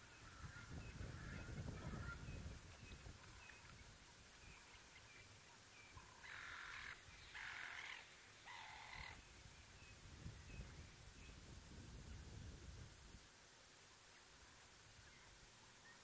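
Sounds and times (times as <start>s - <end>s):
bird cawing: 6.0s - 9.2s.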